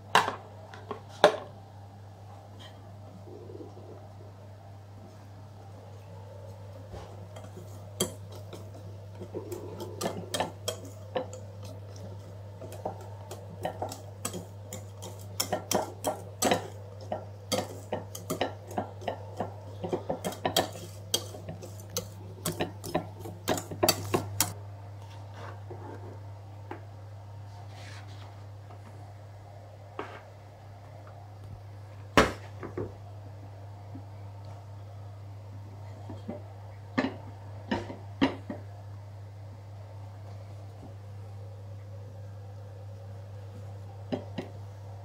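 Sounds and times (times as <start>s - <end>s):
steady low hum: 0.0s - 45.0s
utensils clinking against dishes: 12.7s - 24.6s.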